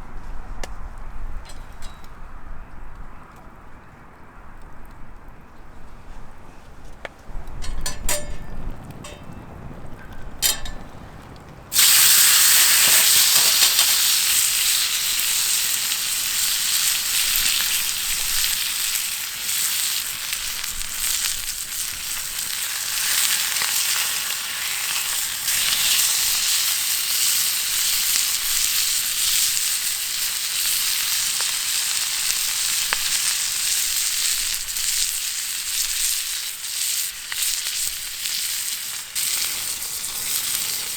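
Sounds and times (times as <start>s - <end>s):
crackling spatter: 7.0s - 40.9s
food sizzling in a hot pan: 11.7s - 40.9s.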